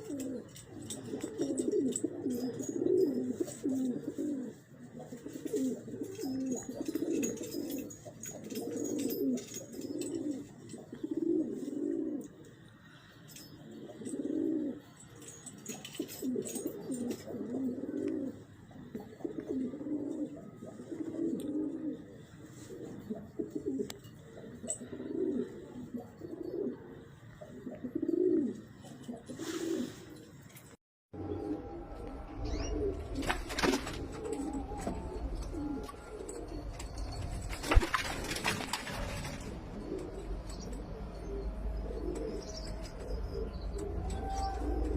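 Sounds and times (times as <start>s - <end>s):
pigeons cooing: 0.0s - 30.3s, 31.2s - 44.9s
low rumble: 31.2s - 37.6s.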